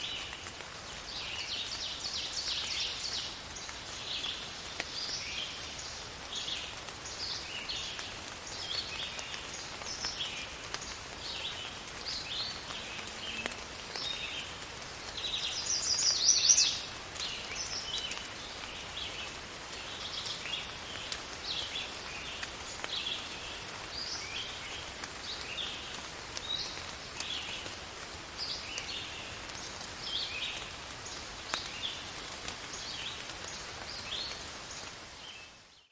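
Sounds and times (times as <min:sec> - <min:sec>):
steady rain falling: 0:00.0 - 0:35.9
bird chirping: 0:15.2 - 0:18.1.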